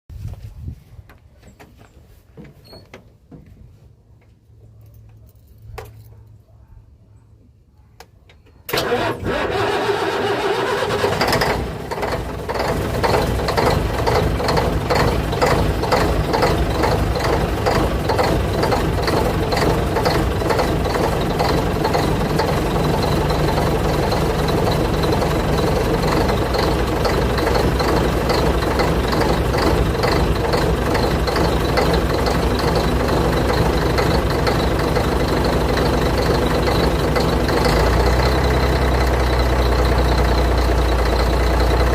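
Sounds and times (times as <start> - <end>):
diesel engine starting and idling: 8.7 - 41.9.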